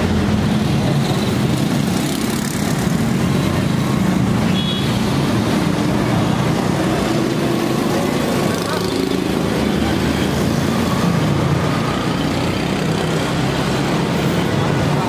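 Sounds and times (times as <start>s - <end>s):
traffic engines running: 0.0s - 15.0s.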